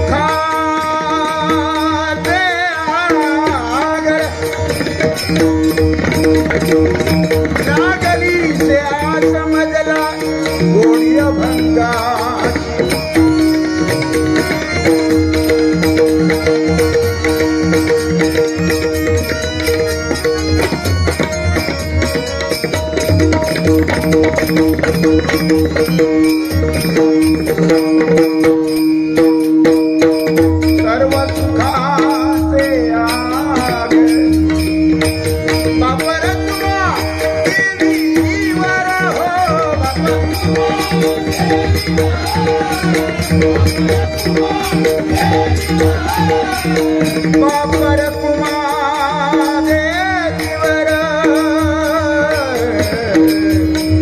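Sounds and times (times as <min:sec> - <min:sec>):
hand drum rhythm: 0:00.0 - 0:54.0
harmonium held notes: 0:00.0 - 0:54.0
faint voices singing: 0:38.4 - 0:47.6.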